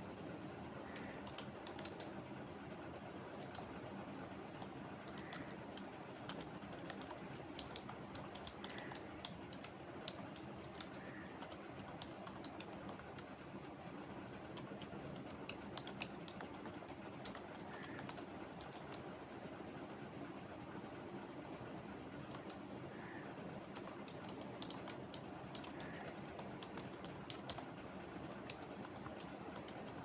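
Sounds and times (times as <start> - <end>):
low background noise: 0.0 - 30.0
typing on computer keyboard: 0.9 - 2.2, 3.2 - 3.9, 4.5 - 19.2, 22.2 - 22.7, 23.6 - 30.0.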